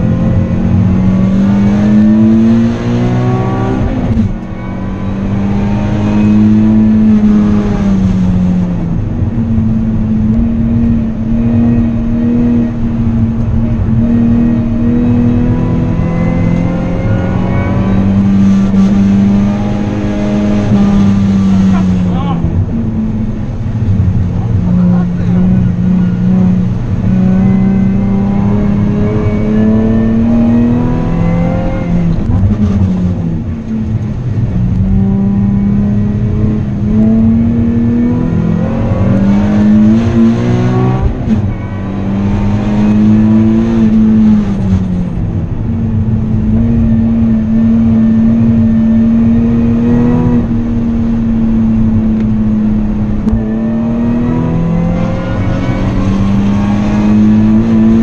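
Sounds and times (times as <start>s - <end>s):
car engine under throttle: 0.0s - 58.0s.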